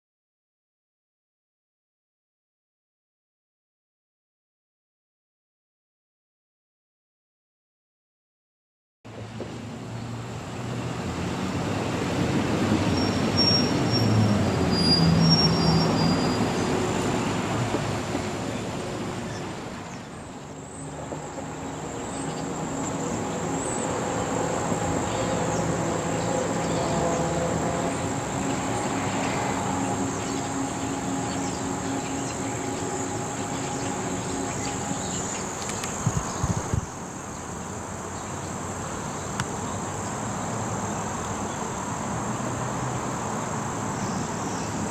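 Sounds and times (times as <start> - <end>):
engine humming steadily: 9.1 - 44.9
vehicle passing: 9.1 - 44.9
insects chirping: 9.9 - 44.9.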